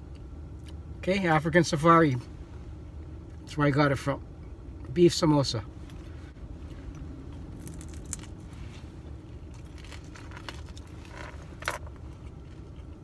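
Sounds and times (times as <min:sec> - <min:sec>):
low steady rumble: 0:00.0 - 0:13.0
crunching of crisp pastry: 0:06.6 - 0:13.0.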